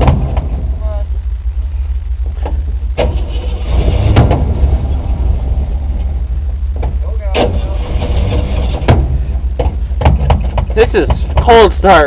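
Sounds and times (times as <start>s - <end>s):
sharp engine knocks: 0.0s - 0.7s, 2.3s - 5.0s, 6.0s - 11.8s
truck engine cranking: 3.0s - 11.4s.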